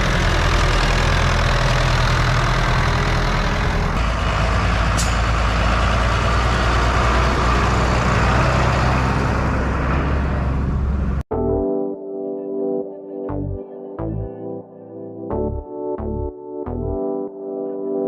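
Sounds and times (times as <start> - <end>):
tractor engine running: 0.0 - 11.2
background music: 11.3 - 18.0.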